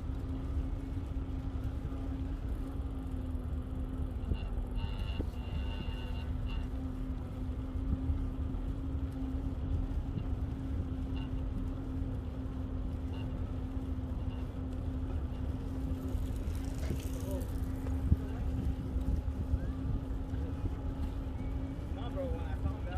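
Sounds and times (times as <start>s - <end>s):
bicycle rolling noise: 0.0s - 22.9s
constant low hum: 0.0s - 22.9s
wind on microphone: 16.0s - 21.8s.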